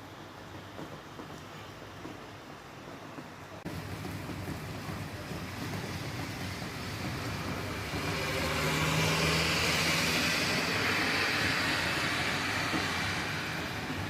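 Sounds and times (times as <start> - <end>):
steady rain: 0.0 - 14.0
tyres hissing on wet road: 0.0 - 14.0
low engine hum: 3.6 - 14.0.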